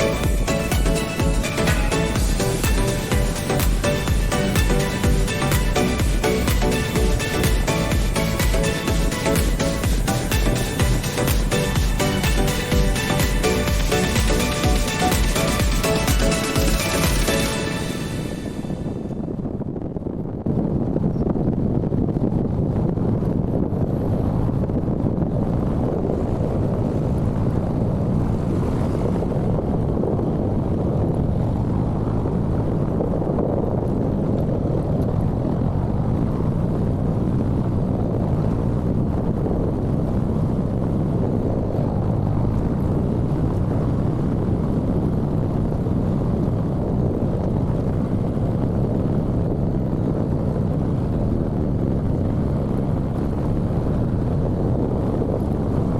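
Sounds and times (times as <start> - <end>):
wind buffeting microphone: 17.8 - 55.9.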